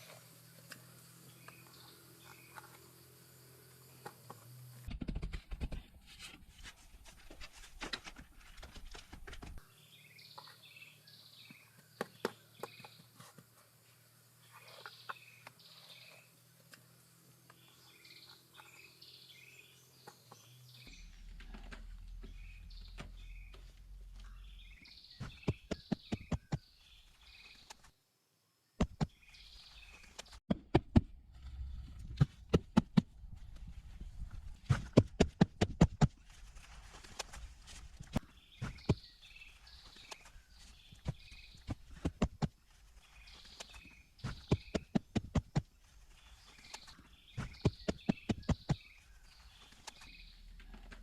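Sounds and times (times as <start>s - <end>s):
birds chirping: 0.0s - 4.4s, 9.6s - 13.6s, 14.3s - 27.9s, 38.1s - 51.0s.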